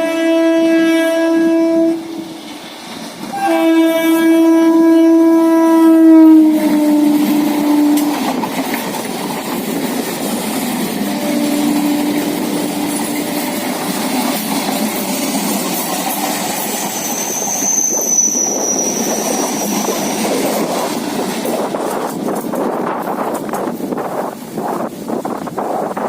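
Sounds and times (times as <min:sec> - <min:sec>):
train wheels rumbling on track: 0:00.0 - 0:26.0
high wheel squeal: 0:11.1 - 0:21.0.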